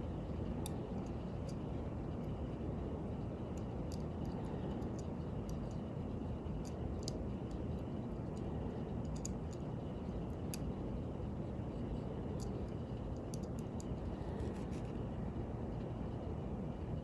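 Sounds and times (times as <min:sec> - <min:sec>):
steady low hum: 0:00.0 - 0:17.0
small tool clicks on metal: 0:03.6 - 0:05.8, 0:06.6 - 0:09.6, 0:13.2 - 0:14.0.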